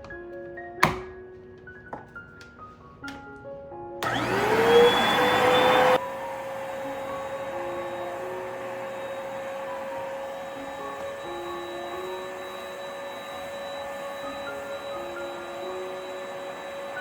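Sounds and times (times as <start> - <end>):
spot cleaner motor whine: 4.0 - 17.0.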